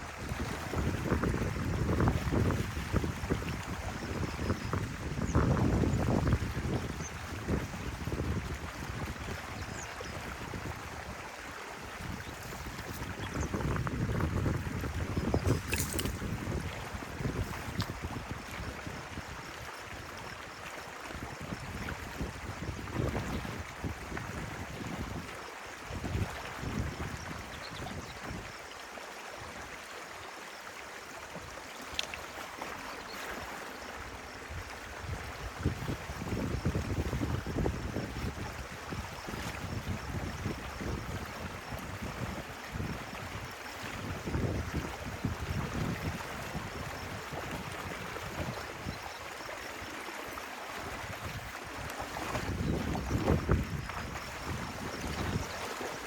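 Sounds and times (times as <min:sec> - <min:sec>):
stream water running: 0:00.0 - 0:56.0
faint click: 0:31.9 - 0:32.2.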